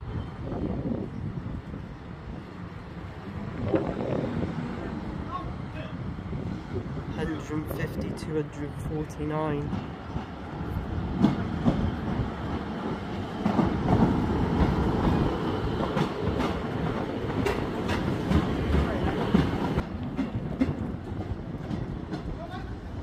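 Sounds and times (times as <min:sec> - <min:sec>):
diesel train engine rumbling: 0:00.0 - 0:23.0
wheels clacking over rail joints: 0:09.5 - 0:23.0.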